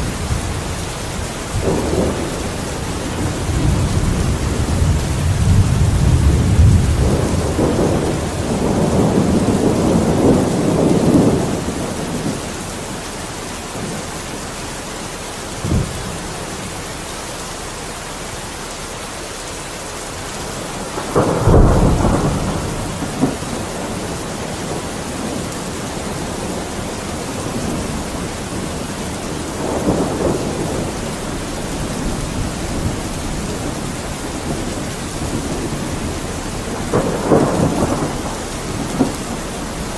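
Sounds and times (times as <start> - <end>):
sharp thunder crack: 0.0 - 12.4, 20.8 - 25.4, 26.1 - 39.9
thunder rumbling: 0.0 - 18.6, 20.0 - 39.9
steady rain: 0.0 - 39.9.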